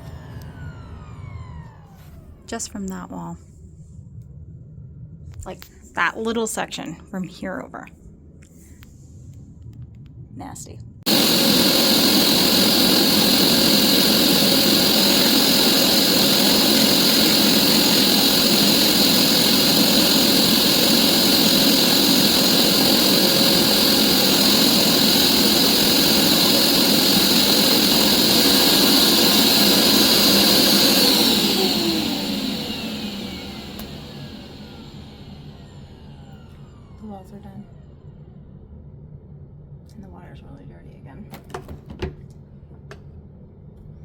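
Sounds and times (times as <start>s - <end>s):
carpet cleaner motor whining: 0.0s - 3.0s, 11.1s - 38.2s.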